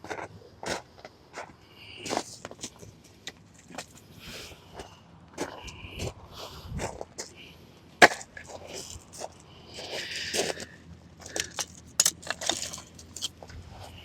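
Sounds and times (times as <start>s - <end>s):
small objects clinking and rustling: 8.1s - 10.6s, 11.2s - 13.4s.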